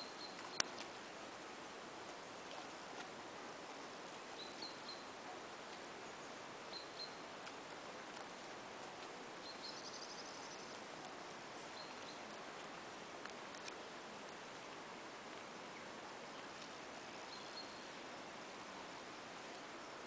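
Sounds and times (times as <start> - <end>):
open-air hiss: 0.0 - 20.0
small bird chirping: 9.4 - 10.7.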